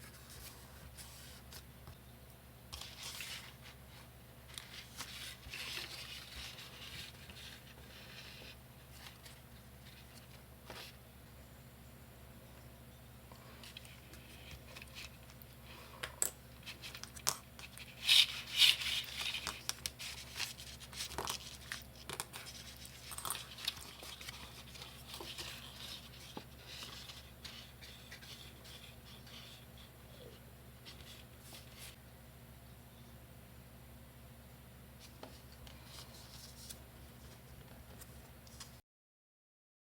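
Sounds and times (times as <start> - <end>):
paper rustling and crinkling: 2.7 - 11.0, 16.6 - 29.9, 30.8 - 32.0, 35.0 - 38.8.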